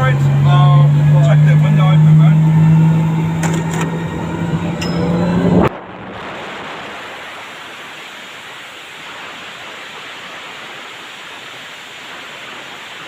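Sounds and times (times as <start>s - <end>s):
steady rushing hiss: 6.1s - 13.0s.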